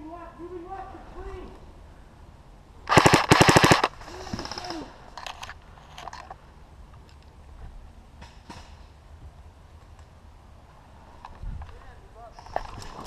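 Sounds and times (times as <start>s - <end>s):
airsoft gun full-auto bursts: 2.9s - 4.7s.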